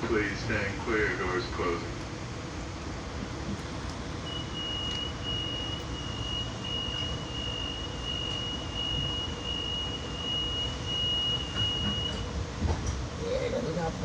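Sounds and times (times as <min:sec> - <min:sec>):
train rumbling at platform: 0:00.0 - 0:14.0
high warning beep: 0:04.2 - 0:12.3.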